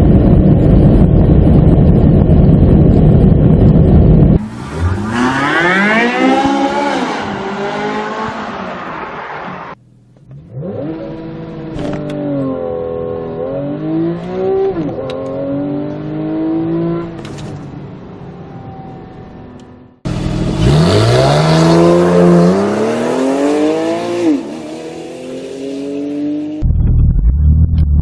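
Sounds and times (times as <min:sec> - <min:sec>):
car engine accelerating through gears: 0:02.4 - 0:17.4, 0:18.4 - 0:26.7.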